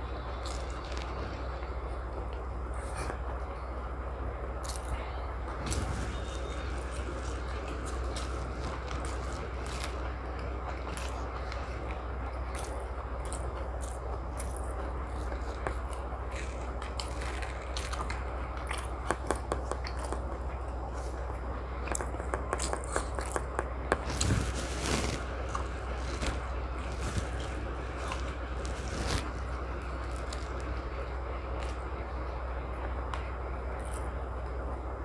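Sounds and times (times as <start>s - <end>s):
steady low hum: 0.0s - 35.0s
person chewing: 0.4s - 1.2s, 5.6s - 32.0s.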